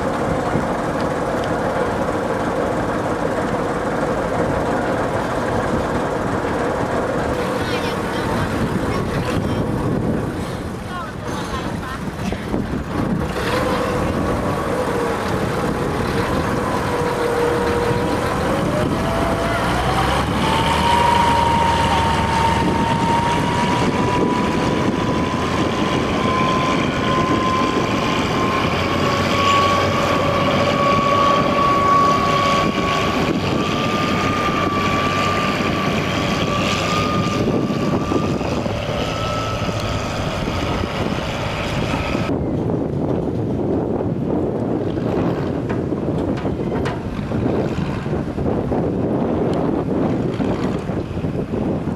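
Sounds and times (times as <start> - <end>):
ferry engine whining: 0.0 - 51.9
rush of noise: 0.0 - 51.9.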